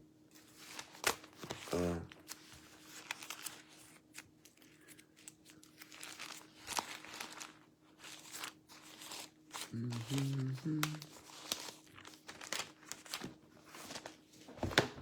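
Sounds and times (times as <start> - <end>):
pages rustling: 0.3 - 15.0
person murmuring: 1.6 - 2.2, 9.6 - 11.1.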